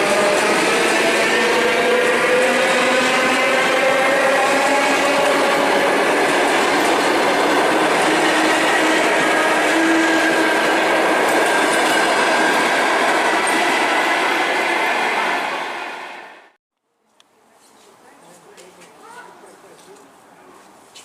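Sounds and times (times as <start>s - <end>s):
electric train running at speed: 0.0s - 16.5s.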